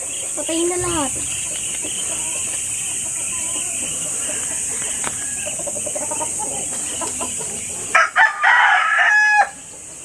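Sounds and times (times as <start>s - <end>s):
high-pitched hiss: 0.0s - 10.0s
rooster crowing: 4.0s - 6.6s, 7.9s - 9.7s.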